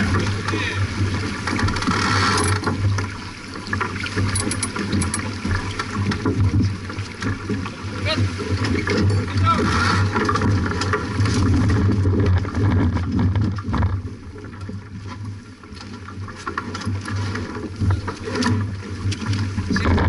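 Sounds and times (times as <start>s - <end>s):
boat knocks and clicks: 0.0s - 20.0s
water rushing along hull: 0.0s - 20.0s
wind buffeting microphone: 19.4s - 20.0s.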